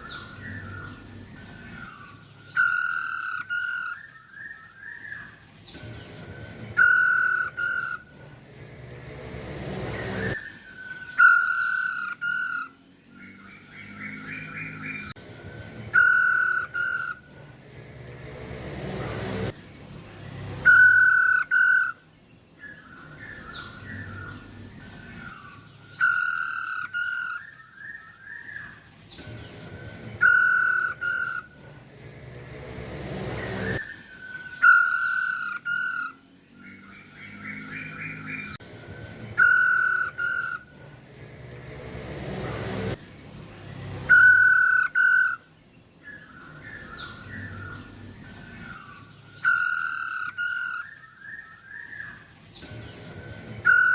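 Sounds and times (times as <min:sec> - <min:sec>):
bird calling harsh notes: 0:01.6 - 0:05.4, 0:06.7 - 0:08.2, 0:09.7 - 0:13.2, 0:15.9 - 0:17.4, 0:20.6 - 0:22.0, 0:25.1 - 0:28.8, 0:30.2 - 0:31.8, 0:33.0 - 0:38.6, 0:39.4 - 0:40.8, 0:44.0 - 0:47.8, 0:48.4 - 0:52.2, 0:53.6 - 0:53.9.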